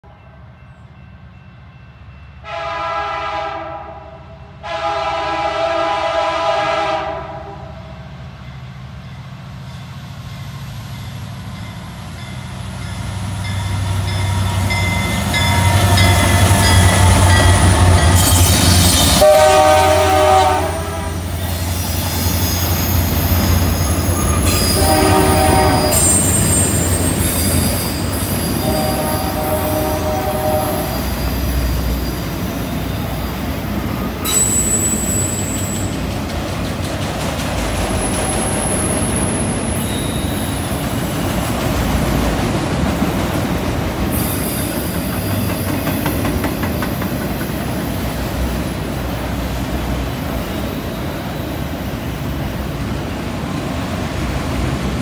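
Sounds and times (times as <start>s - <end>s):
diesel locomotives rumbling: 0.0s - 55.0s
train horn blasts: 2.4s - 8.0s, 19.1s - 21.4s, 24.4s - 26.4s, 28.4s - 31.2s
train wheel squeal: 9.7s - 19.4s, 21.3s - 36.1s, 37.6s - 41.2s, 44.0s - 48.8s.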